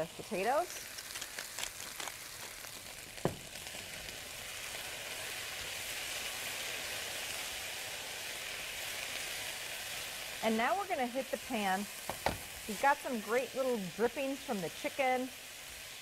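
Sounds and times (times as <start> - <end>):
potatoes sizzling in oil: 0.0 - 16.0
spatula stirring in skillet: 0.1 - 10.5
pepper mill grinding: 0.2 - 3.0.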